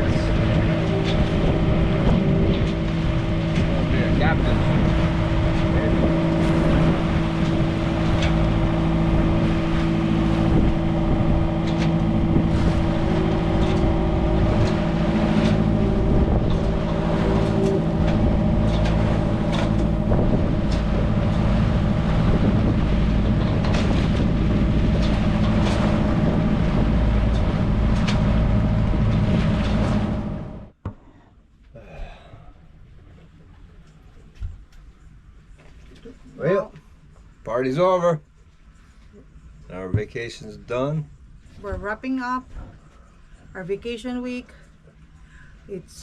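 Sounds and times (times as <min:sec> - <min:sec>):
wind buffeting microphone: 0:00.0 - 0:30.8
boat engine humming: 0:00.0 - 0:46.0.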